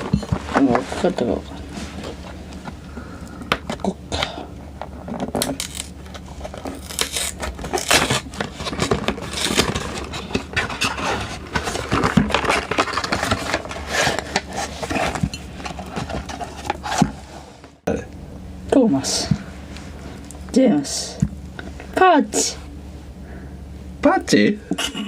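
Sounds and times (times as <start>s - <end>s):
wrapper crinkling and tearing: 5.4s - 15.0s.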